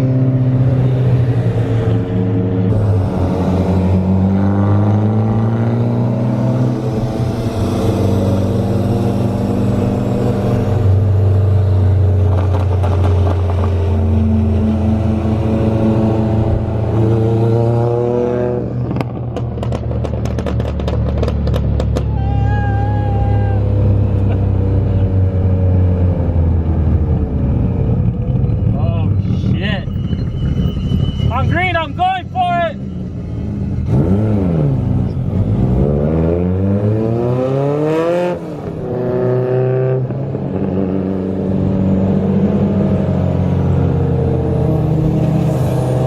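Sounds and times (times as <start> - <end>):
short high beep: 29.6 - 33.5.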